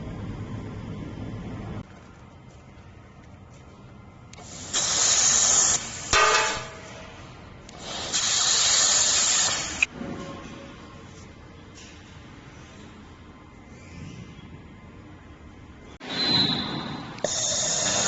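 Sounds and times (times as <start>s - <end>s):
laser welding gun hissing: 4.4s - 6.5s, 7.7s - 9.9s, 17.2s - 18.0s.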